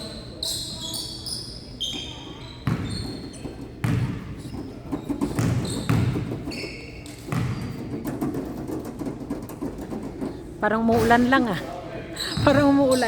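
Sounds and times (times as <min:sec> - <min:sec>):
murmur of crowd chatter: 0:00.0 - 0:13.0
sneaker squeaks: 0:00.0 - 0:13.0
basketball bouncing on wooden floor: 0:01.9 - 0:10.3, 0:10.9 - 0:11.4, 0:12.4 - 0:13.0.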